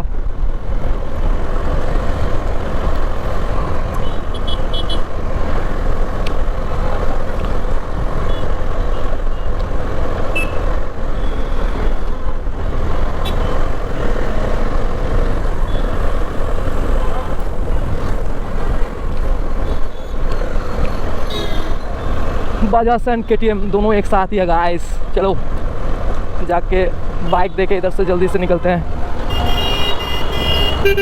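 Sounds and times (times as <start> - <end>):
vehicle horn beeps: 10.3 - 10.6, 13.2 - 13.6, 29.3 - 31.0.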